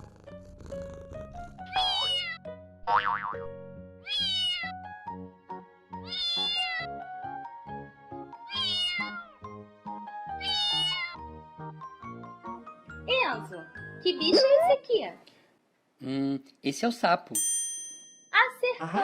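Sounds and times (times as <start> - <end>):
cat meowing: 0.7 - 2.4, 4.0 - 4.8, 6.0 - 6.9, 8.4 - 9.4, 10.4 - 11.3.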